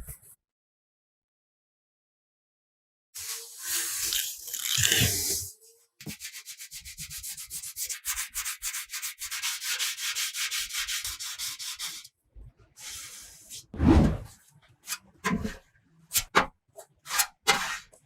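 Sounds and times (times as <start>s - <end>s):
hand sanding strokes: 6.0s - 12.1s.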